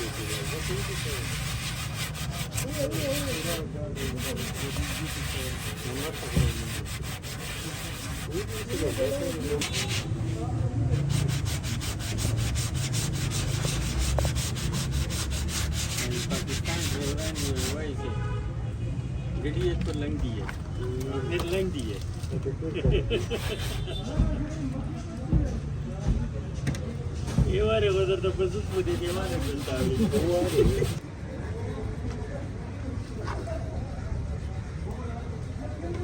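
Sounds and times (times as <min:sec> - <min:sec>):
sanding car body panel: 0:00.0 - 0:17.9, 0:22.8 - 0:24.3, 0:27.9 - 0:31.0.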